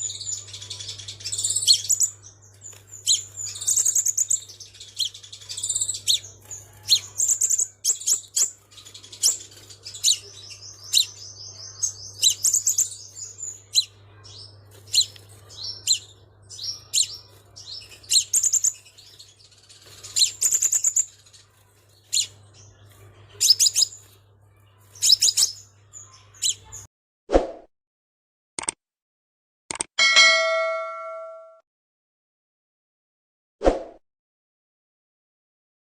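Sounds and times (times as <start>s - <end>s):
bird chirping: 0.0s - 26.9s
bird trill: 0.0s - 26.9s, 30.0s - 31.6s.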